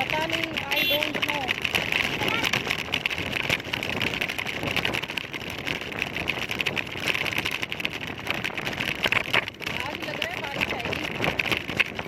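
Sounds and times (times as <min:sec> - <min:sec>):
road and traffic rush: 0:00.0 - 0:12.0
wind buffeting microphone: 0:00.0 - 0:12.0.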